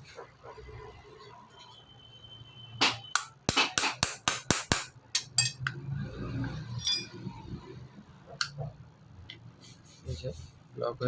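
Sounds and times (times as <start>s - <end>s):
metallic jingle: 6.7s - 7.3s.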